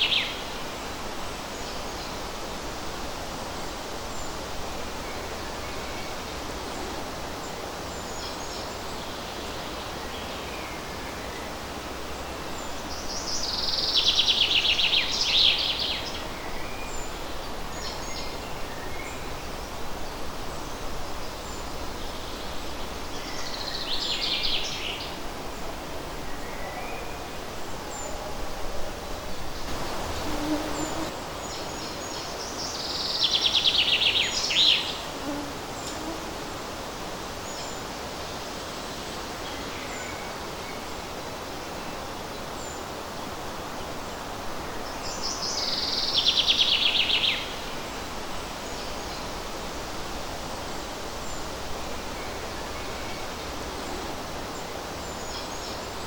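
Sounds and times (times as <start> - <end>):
wind in forest leaves: 0.0 - 56.0
songbird singing: 4.0 - 25.2, 26.2 - 36.2, 44.6 - 49.4.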